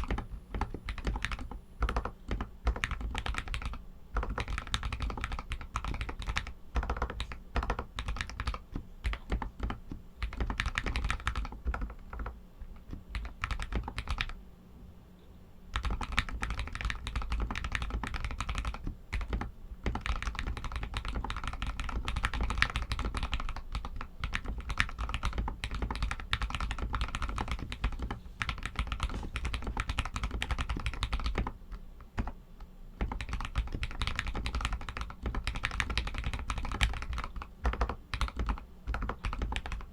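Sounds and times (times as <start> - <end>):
mechanical keyboard typing: 0.0 - 14.4, 15.7 - 32.4, 33.0 - 39.9.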